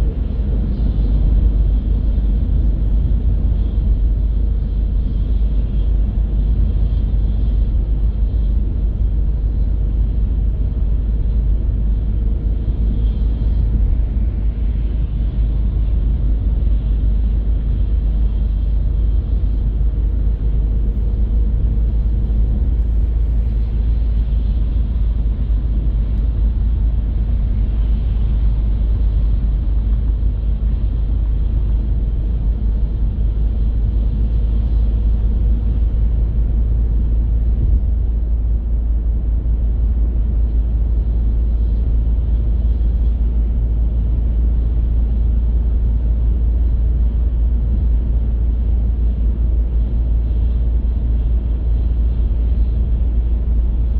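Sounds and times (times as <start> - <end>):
car driving on road: 0.0 - 53.9.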